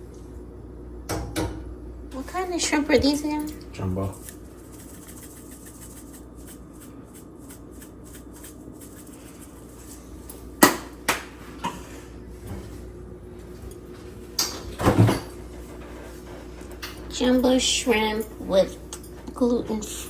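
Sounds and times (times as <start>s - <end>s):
steady low hum: 0.0s - 20.0s
kitchen clatter: 7.6s - 11.8s, 14.4s - 15.4s.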